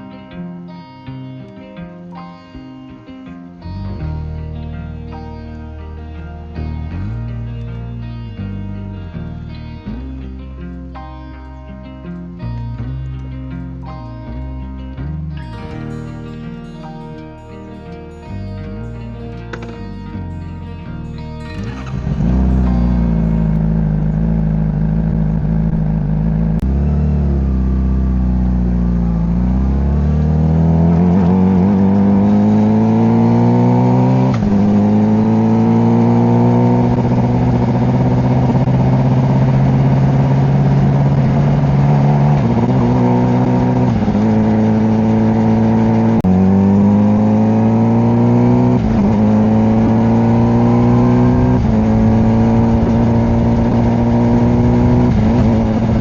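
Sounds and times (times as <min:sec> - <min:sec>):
motorcycle engine accelerating: 0:15.1 - 0:56.0.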